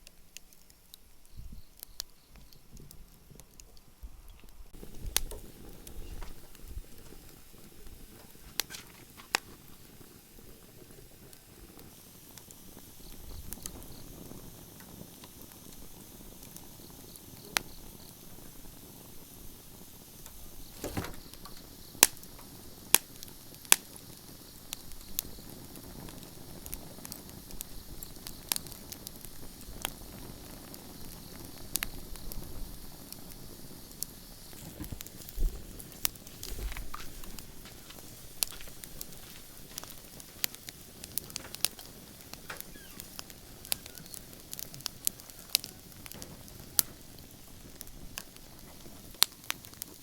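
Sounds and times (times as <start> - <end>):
low steady rustle: 0.0 - 16.8, 31.9 - 50.0
bonfire crackling and snapping: 0.0 - 50.0.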